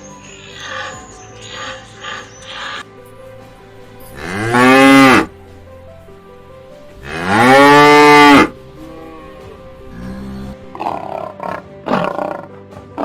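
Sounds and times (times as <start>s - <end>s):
cow mooing: 4.2s - 5.3s, 7.0s - 12.4s.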